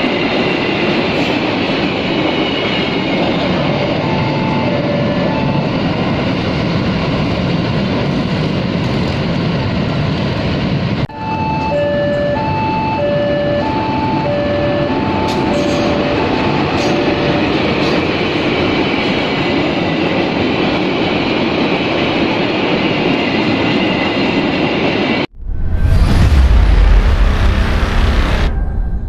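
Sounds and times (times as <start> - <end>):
freight train rolling past: 0.0 - 29.0
two-tone crossing alarm: 3.6 - 6.3, 11.1 - 18.2.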